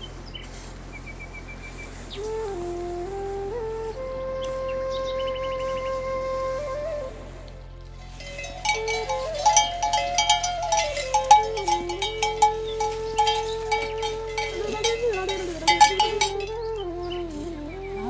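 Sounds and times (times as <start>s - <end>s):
flute playing slow melody: 1.8s - 18.0s
bell clinks: 8.2s - 16.6s.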